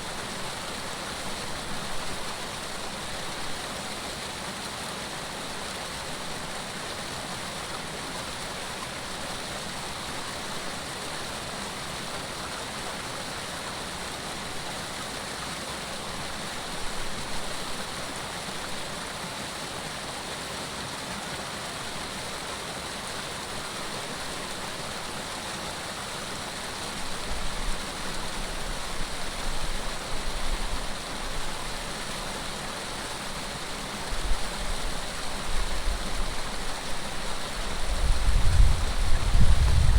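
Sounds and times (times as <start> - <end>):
water rushing: 0.0 - 39.9
wind gusts buffeting microphone: 37.8 - 39.9.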